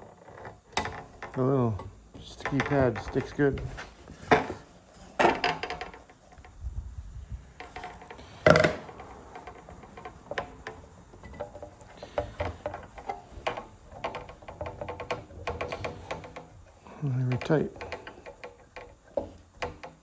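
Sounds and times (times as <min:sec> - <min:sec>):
guide rail knocks and clicks: 0:00.7 - 0:06.6, 0:07.6 - 0:20.0.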